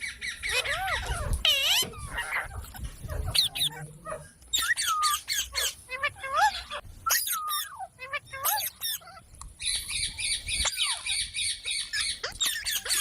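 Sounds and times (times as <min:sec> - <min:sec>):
parrots squawking and chattering: 0:00.0 - 0:13.0.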